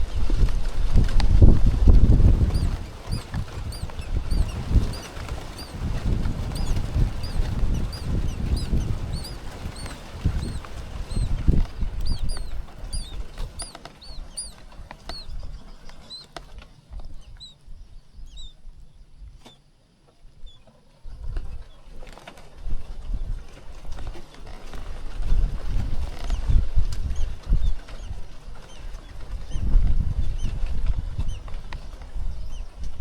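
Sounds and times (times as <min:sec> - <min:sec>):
nestling birds cheeping: 0:02.0 - 0:18.6.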